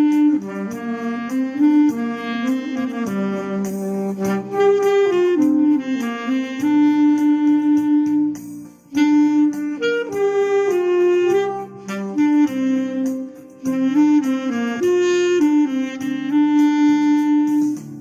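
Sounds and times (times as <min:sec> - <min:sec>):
backing track with steady beat: 0:00.0 - 0:18.0
clarinet melody: 0:00.0 - 0:18.0.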